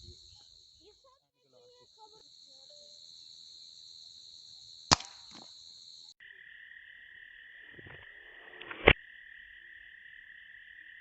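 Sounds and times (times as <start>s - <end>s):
high-pitched insect buzz: 0.0s - 11.0s
air rifle shot: 4.9s - 5.4s.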